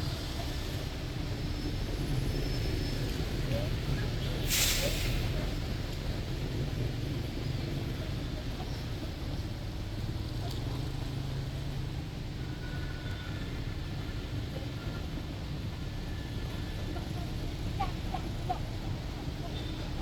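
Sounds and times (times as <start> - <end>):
bus engine rumble: 0.0 - 20.0
road traffic: 0.0 - 20.0
sharp hiss: 4.5 - 5.3.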